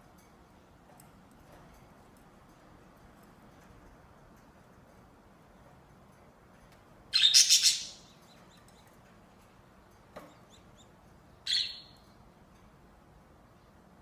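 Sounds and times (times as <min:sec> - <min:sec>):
faint bird chirps: 0:07.1 - 0:09.0, 0:10.2 - 0:12.2
budgerigar harsh chattering call: 0:07.2 - 0:08.1, 0:11.5 - 0:11.9.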